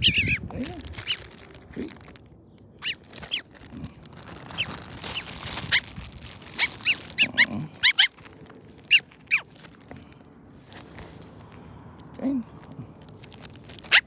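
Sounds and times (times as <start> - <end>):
bird giving harsh calls: 0.0 - 1.2, 2.8 - 3.5, 4.5 - 8.2, 8.9 - 9.6.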